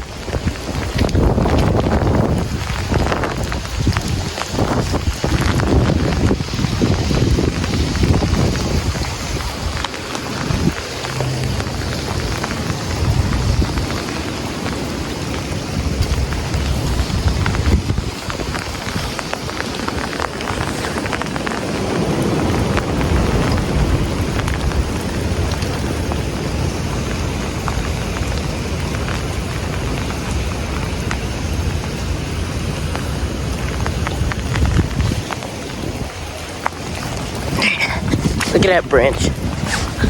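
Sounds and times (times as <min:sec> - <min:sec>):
heavy rain falling: 0:00.0 - 0:40.0
raindrops ticking on phone: 0:00.0 - 0:40.0
wind rumbling on microphone: 0:00.0 - 0:40.0.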